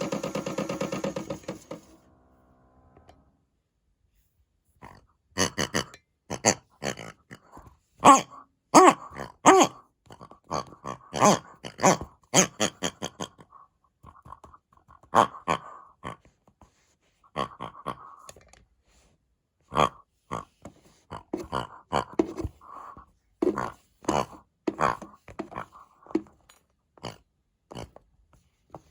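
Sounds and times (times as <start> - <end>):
pig-like grunts and oinks: 4.8 - 16.4, 17.2 - 18.4, 19.6 - 26.3, 27.0 - 28.0.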